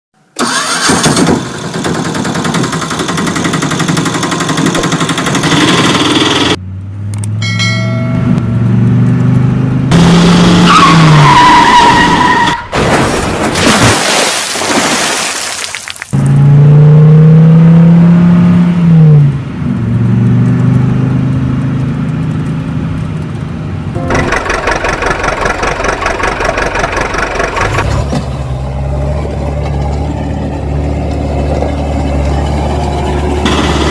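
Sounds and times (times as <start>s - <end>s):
vehicle engines revving: 8.3s - 12.4s, 16.2s - 33.9s.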